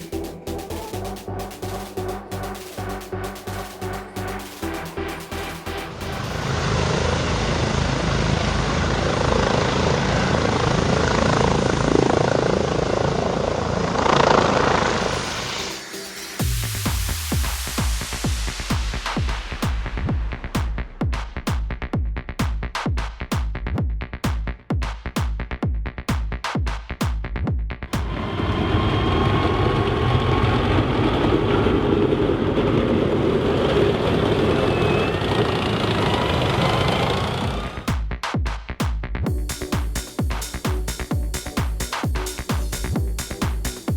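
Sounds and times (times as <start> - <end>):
helicopter rotor and engine: 6.0 - 15.2, 28.4 - 37.8
faint high whine: 28.3 - 37.0.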